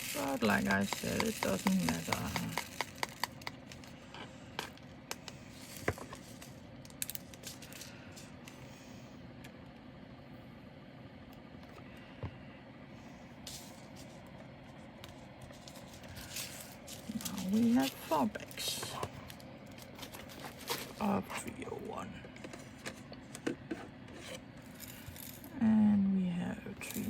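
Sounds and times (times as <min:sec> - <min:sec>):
faint steady hum: 0:00.0 - 0:27.0
plastic bags rustling and clicking: 0:15.3 - 0:21.1.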